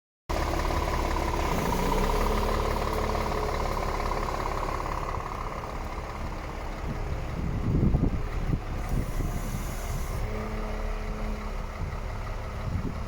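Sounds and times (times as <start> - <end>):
diesel truck idling: 0.3 - 13.0.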